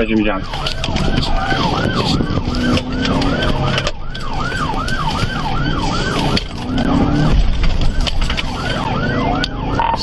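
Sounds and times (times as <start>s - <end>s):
car engine and road noise: 0.0s - 10.0s
police siren yelping: 0.0s - 10.0s.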